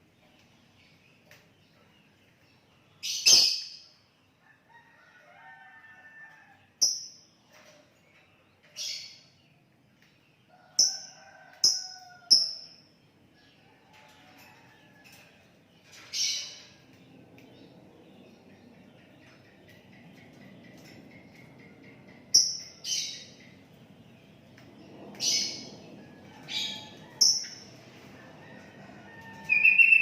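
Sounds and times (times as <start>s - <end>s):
bird high sharp chirps: 3.2s - 3.7s.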